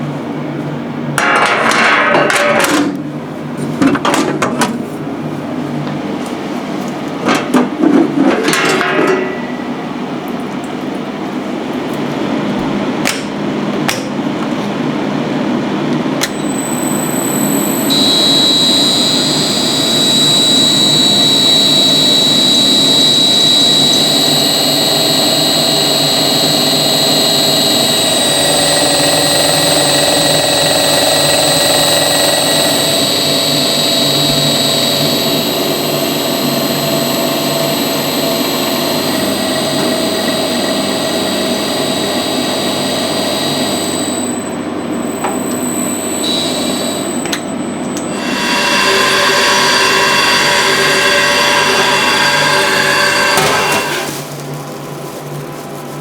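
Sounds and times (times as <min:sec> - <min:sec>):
machine running with high whine: 0:05.2 - 0:56.0.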